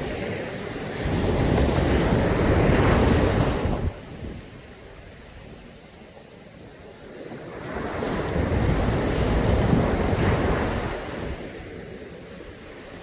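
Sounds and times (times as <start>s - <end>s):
wave breaking on beach: 0.0s - 4.2s, 7.0s - 13.0s.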